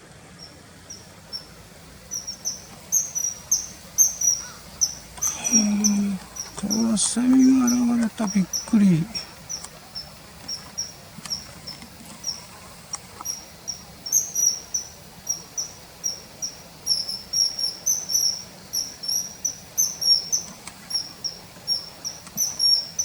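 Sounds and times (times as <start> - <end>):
kingfisher piping calls: 0.3 - 23.0.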